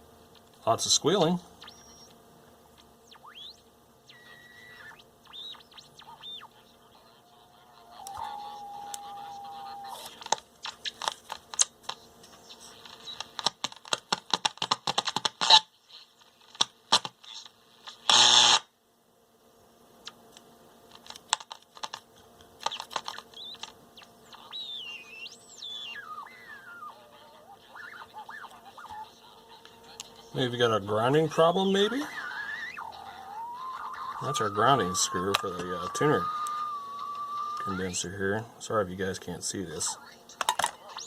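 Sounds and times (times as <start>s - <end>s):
radio speaker crackling and popping: 0.3s - 18.7s, 20.0s - 41.0s
burst of static: 2.8s - 18.8s, 22.6s - 41.0s
radio whistle: 7.3s - 10.1s, 24.3s - 29.6s, 31.3s - 38.0s.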